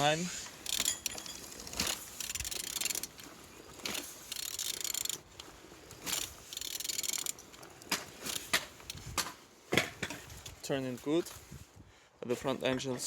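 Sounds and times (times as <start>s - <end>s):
ratchet wrench clicking: 0.6s - 3.2s, 3.8s - 9.0s.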